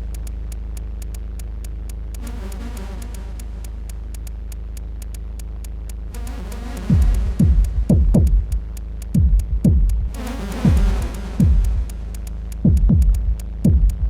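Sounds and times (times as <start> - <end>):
fast ticking click: 0.0 - 14.0
synthesizer low drone: 0.0 - 14.0
kick drum thumps: 6.9 - 11.9, 12.6 - 14.0.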